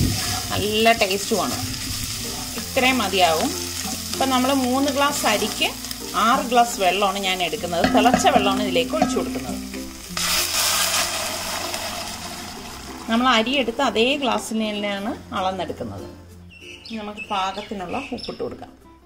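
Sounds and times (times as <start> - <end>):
food sizzling in hot fat: 0.0 - 14.8
background music: 0.0 - 19.0
water poured into a pot: 7.7 - 13.2.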